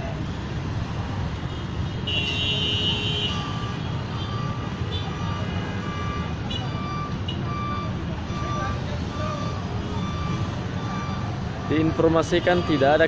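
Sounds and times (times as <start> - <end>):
road traffic engines rumbling: 0.0 - 13.0
reversing alarm beeping: 3.4 - 13.0.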